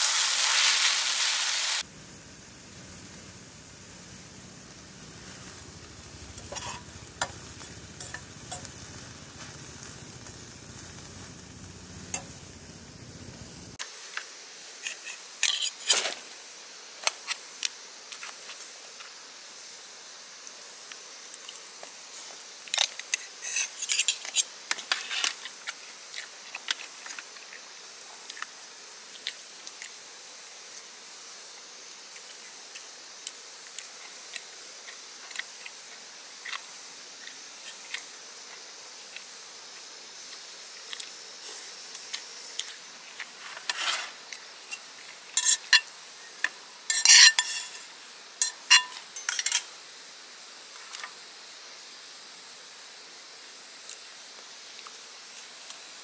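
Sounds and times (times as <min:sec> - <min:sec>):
insects chirping in pulses: 0:01.8 - 0:14.1.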